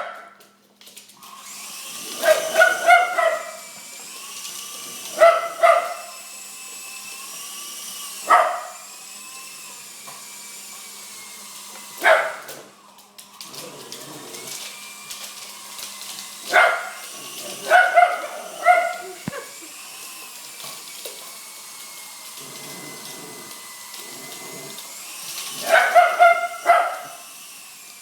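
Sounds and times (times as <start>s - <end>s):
dog barking high-pitched: 0.0s - 0.4s, 2.1s - 3.7s, 5.0s - 6.2s, 8.2s - 8.9s, 12.0s - 12.6s, 16.4s - 19.7s, 25.6s - 27.2s.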